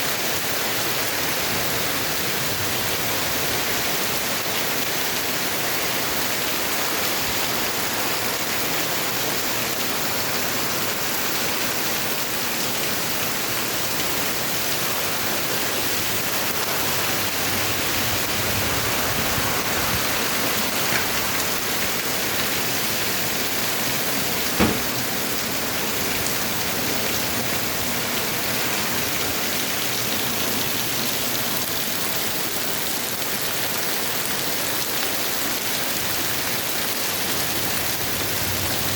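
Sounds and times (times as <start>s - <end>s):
heavy rain: 0.0s - 38.9s
sharp knock: 24.6s - 25.1s.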